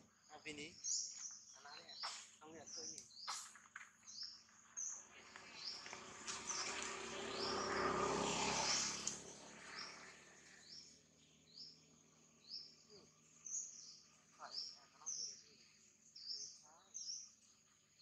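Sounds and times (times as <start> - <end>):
bird chirping: 0.0 - 8.2, 9.0 - 18.0
broad rushing noise: 5.4 - 10.4.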